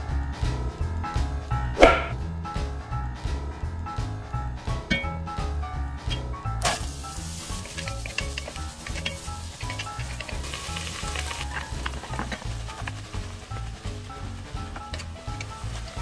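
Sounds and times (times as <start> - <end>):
boogie-woogie background music: 0.0 - 16.0
onion sizzling in butter: 6.2 - 16.0
wooden spatula clicks and scrapes: 6.6 - 16.0.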